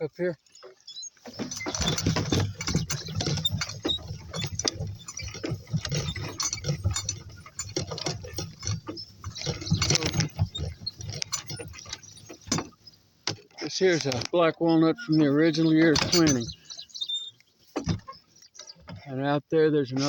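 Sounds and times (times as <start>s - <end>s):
metallic harness clinking and rattling: 1.4s - 12.8s.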